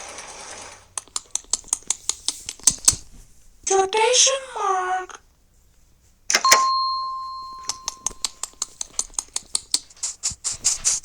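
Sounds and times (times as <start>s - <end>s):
sharp rapid clicks: 0.2s - 3.0s, 7.7s - 11.0s
bell-like ding: 6.4s - 8.4s.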